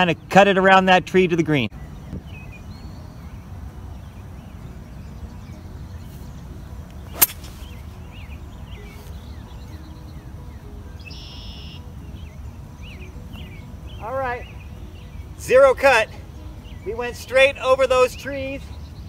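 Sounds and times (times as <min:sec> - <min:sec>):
golf club striking ball: 0:07.1 - 0:07.8.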